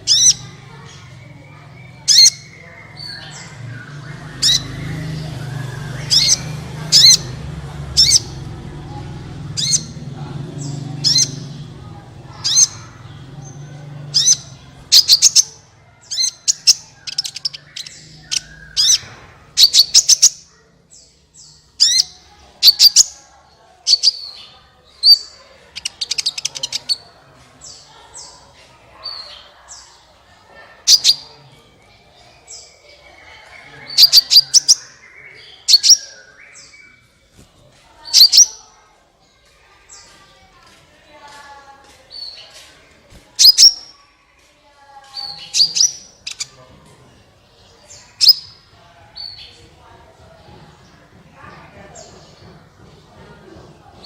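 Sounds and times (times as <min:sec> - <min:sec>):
bird high sharp chirps: 0:00.0 - 0:08.5, 0:09.5 - 0:10.0, 0:10.6 - 0:23.2, 0:23.8 - 0:28.4, 0:30.9 - 0:31.3, 0:32.5 - 0:37.2, 0:38.0 - 0:38.7, 0:43.4 - 0:44.0, 0:45.1 - 0:46.5, 0:47.9 - 0:49.5.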